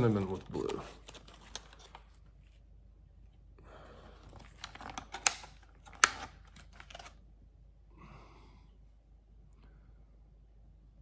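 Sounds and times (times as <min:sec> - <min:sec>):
plastic packaging rustling: 0:04.3 - 0:07.2.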